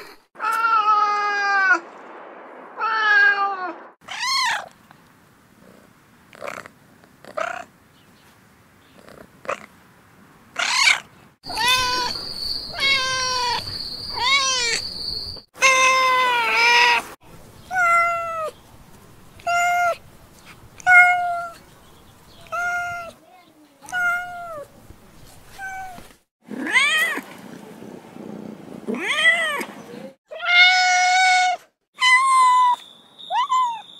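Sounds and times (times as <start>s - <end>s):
cat meowing: 2.8s - 4.7s, 10.6s - 13.6s, 14.2s - 14.8s, 23.9s - 24.7s, 30.3s - 33.9s.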